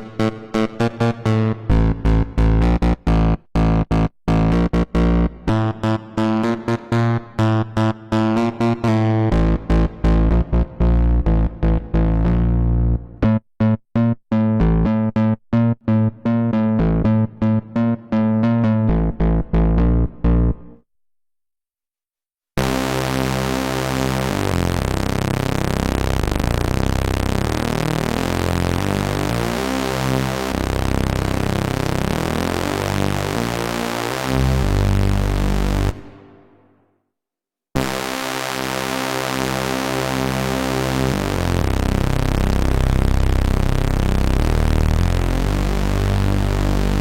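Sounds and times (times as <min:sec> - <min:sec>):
buzzy synth bass tone: 0:00.0 - 0:07.6, 0:08.4 - 0:20.8, 0:22.6 - 0:36.5, 0:37.8 - 0:47.0.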